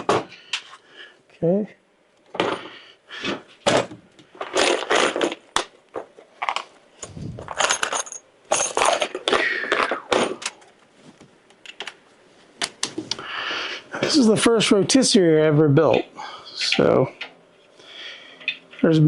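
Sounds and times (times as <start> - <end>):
metal parts and tools clanking: 6.4 - 10.7.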